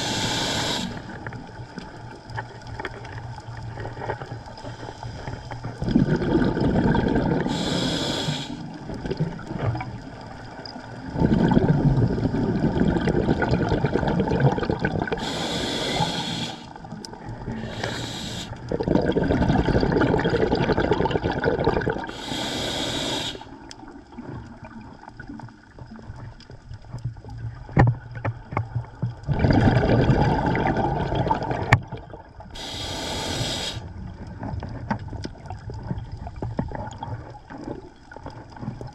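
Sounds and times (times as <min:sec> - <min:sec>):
regulator inhale hiss: 0:00.0 - 0:01.2, 0:04.6 - 0:05.6, 0:07.4 - 0:08.8, 0:15.2 - 0:16.8, 0:17.5 - 0:18.7, 0:22.1 - 0:23.6, 0:32.6 - 0:33.9
exhaled bubbles rushing: 0:05.7 - 0:10.3, 0:11.0 - 0:22.2, 0:29.2 - 0:32.3.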